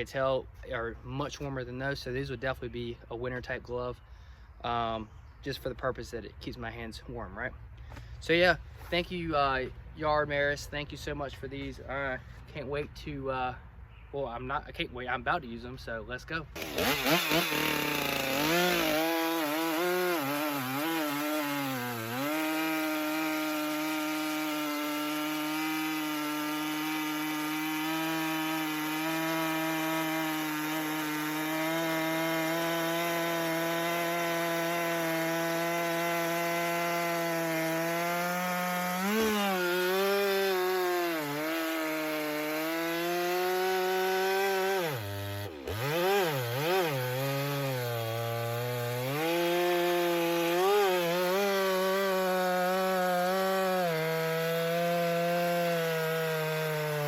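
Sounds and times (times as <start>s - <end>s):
chainsaw cutting log: 16.5s - 57.0s.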